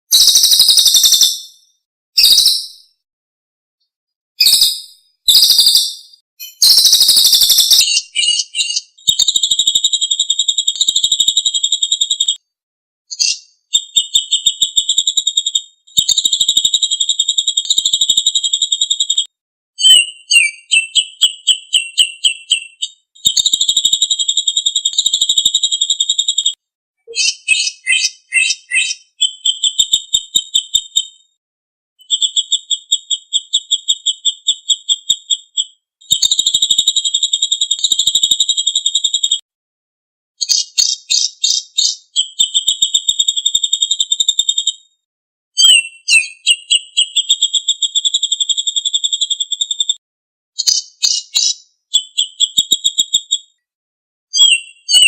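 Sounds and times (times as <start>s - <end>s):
songbird trilling: 4.4s - 9.3s, 27.1s - 30.2s.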